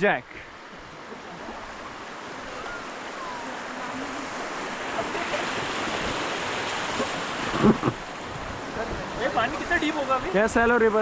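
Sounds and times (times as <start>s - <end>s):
rushing whitewater: 0.0s - 11.0s.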